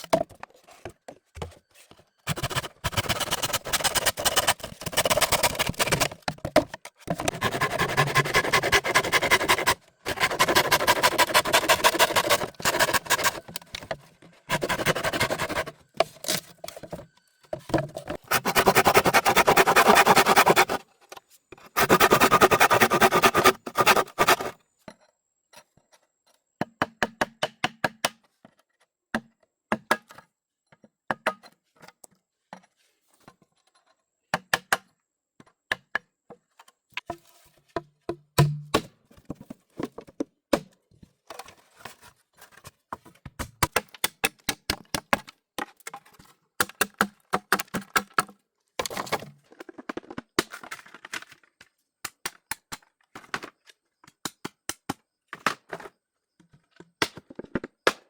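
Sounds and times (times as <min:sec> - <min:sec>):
sharp knocks from hand tools: 0:38.1 - 0:38.8.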